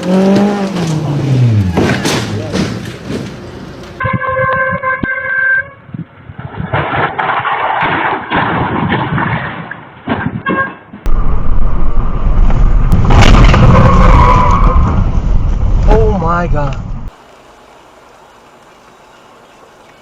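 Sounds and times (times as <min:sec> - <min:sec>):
road and engine noise: 0:00.0 - 0:08.4, 0:09.8 - 0:20.0
deep engine rumble: 0:11.1 - 0:17.1.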